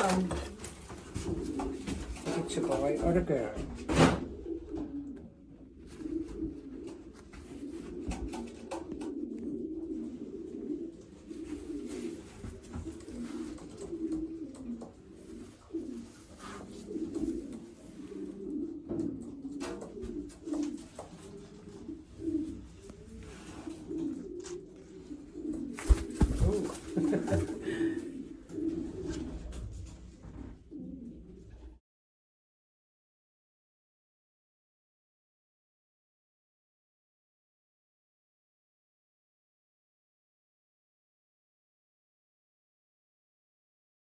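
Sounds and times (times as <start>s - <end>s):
pigeons cooing: 0.0s - 31.8s.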